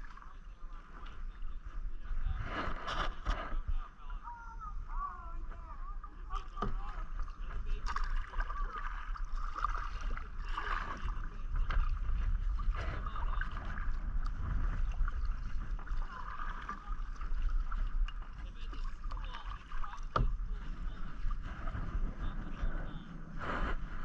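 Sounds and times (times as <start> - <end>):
steady low rumble: 0.0 - 24.0
paddle splashing in water: 6.1 - 22.7.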